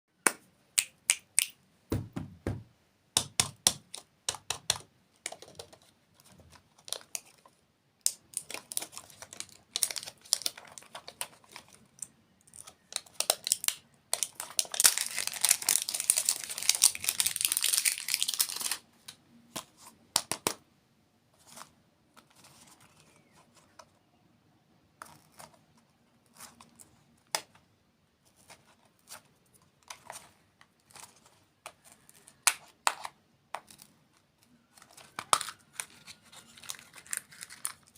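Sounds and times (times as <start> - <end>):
plastic wrappers crinkling: 5.3 - 18.9, 33.6 - 37.9.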